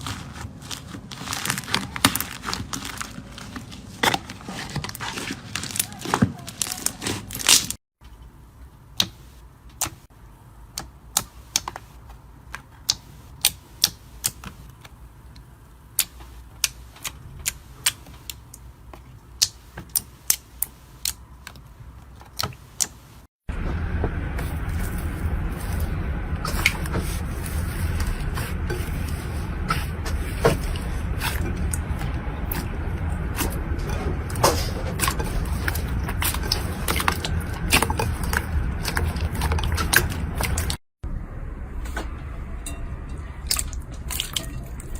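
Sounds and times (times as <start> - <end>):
steady low noise: 23.5 - 44.9.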